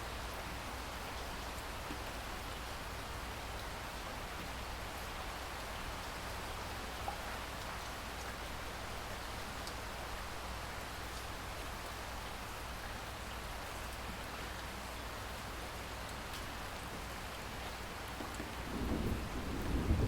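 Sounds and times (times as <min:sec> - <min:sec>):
steady rain hiss: 0:00.0 - 0:20.0
rain drops ticking: 0:00.1 - 0:20.0
thunder rumble: 0:18.4 - 0:20.0.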